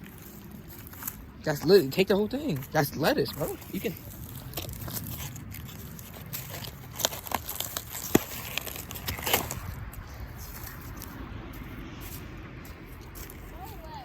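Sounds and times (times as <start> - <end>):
leafy plants rustling: 0.0 - 14.0
stems and leaves snapping: 3.4 - 11.2.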